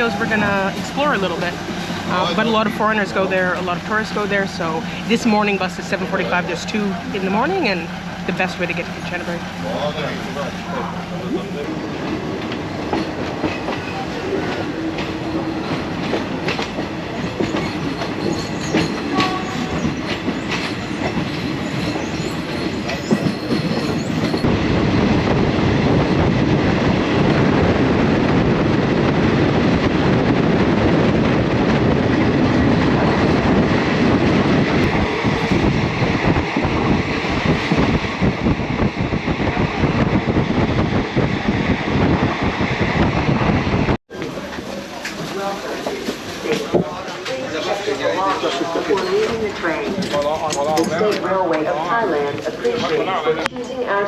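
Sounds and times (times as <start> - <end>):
train rattling on rails: 0.0 - 54.0.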